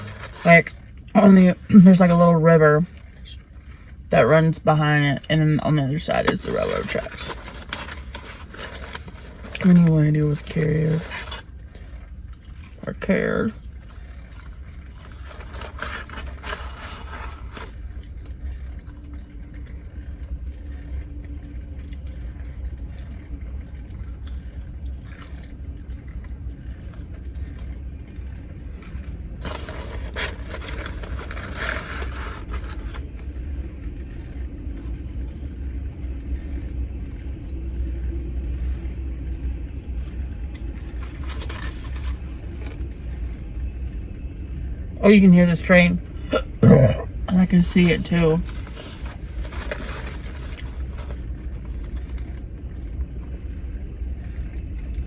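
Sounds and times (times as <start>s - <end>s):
scraping and rustling: 0.0s - 0.9s, 6.2s - 12.0s, 13.9s - 18.8s, 28.8s - 33.3s, 40.8s - 42.9s, 47.7s - 52.4s.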